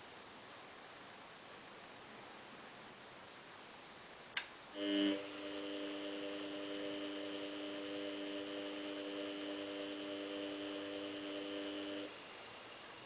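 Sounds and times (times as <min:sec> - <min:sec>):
washing machine electric hum: 0:04.4 - 0:13.0.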